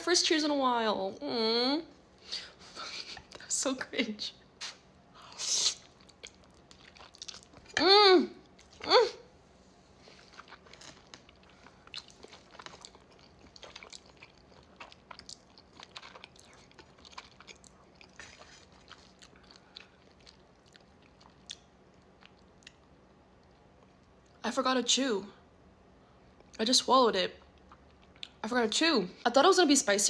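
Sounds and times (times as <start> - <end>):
wet chewing sounds: 5.7 - 7.8, 9.9 - 24.4.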